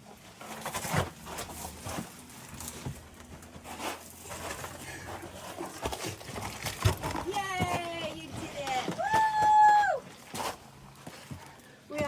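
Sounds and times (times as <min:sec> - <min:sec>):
shoes scraping on boulders: 0:00.0 - 0:12.0
scuffs and knocks on rock: 0:02.8 - 0:12.0.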